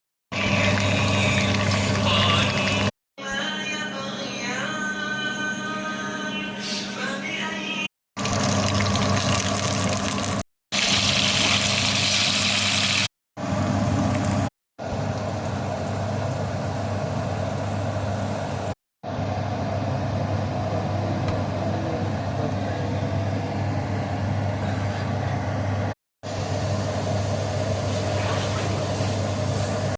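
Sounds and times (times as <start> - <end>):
machine-like hum: 0.3 - 2.9, 13.4 - 29.9.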